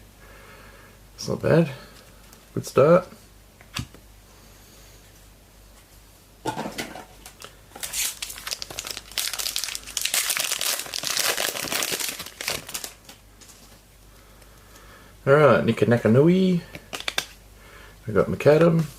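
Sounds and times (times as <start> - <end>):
wrapper tearing and crinkling: 7.4 - 13.2, 16.9 - 17.4.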